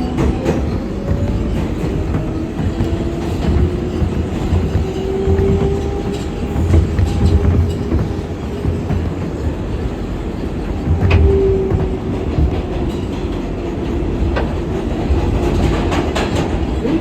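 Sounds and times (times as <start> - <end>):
subway train rumble: 0.0 - 17.0
train whine: 0.0 - 17.0
wheels clicking over rail joints: 0.0 - 17.0.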